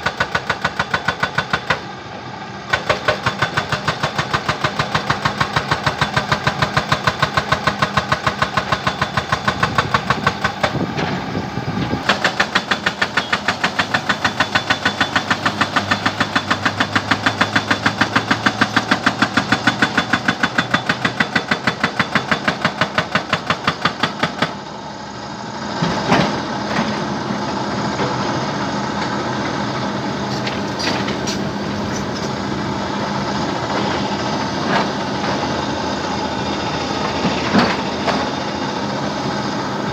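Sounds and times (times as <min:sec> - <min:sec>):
jackhammer hammering: 0:00.0 - 0:01.9, 0:02.7 - 0:11.0, 0:12.0 - 0:24.6.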